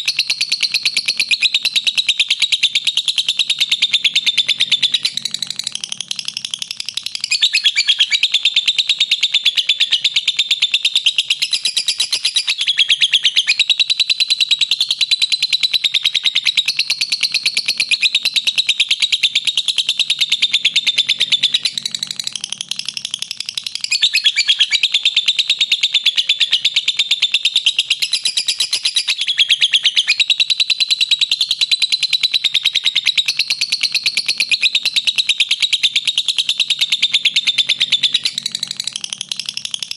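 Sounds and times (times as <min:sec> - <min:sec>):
bird shrill rapid chatter: 0:03.6 - 0:08.6, 0:20.5 - 0:25.0.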